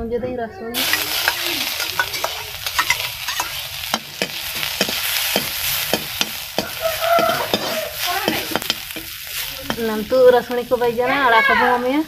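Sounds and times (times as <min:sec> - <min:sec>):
spoon scraping metal pan: 0:00.8 - 0:11.8
paste sizzling in hot oil: 0:00.8 - 0:12.0.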